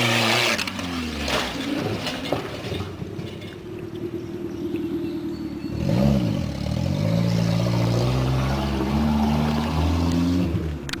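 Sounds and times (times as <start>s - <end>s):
truck engine revving: 0.0s - 2.2s, 5.7s - 11.0s.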